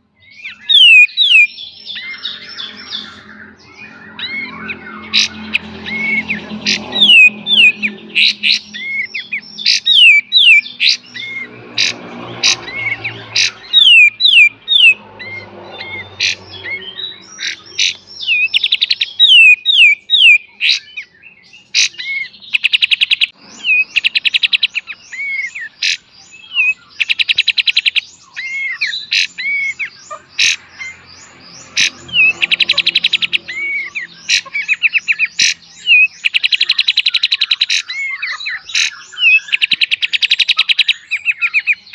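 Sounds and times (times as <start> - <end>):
songbird whistling and clicking: 16.6 - 20.8, 21.8 - 30.2, 31.8 - 41.9.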